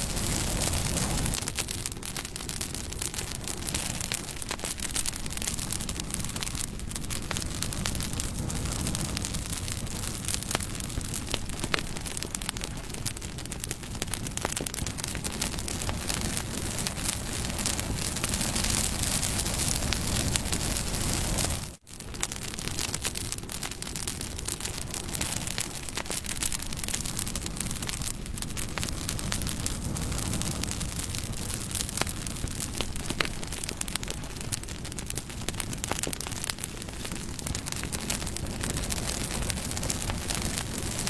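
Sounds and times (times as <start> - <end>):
campfire low rush: 0.0 - 41.0
fire crackles and pops: 0.0 - 41.0.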